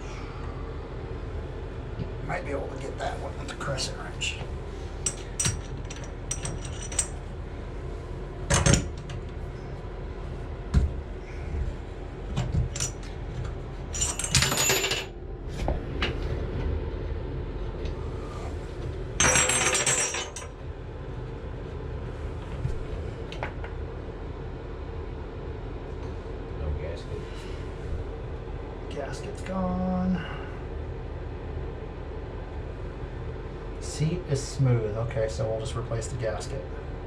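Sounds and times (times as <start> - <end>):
wrench metal clinks and knocks: 5.1 - 7.2, 14.0 - 15.1, 19.2 - 20.5.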